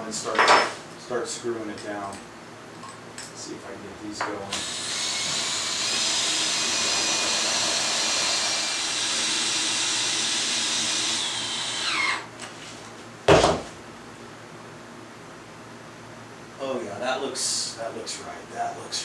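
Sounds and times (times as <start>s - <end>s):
power drill driving screws: 4.5s - 12.3s
loud thump: 13.3s - 13.7s.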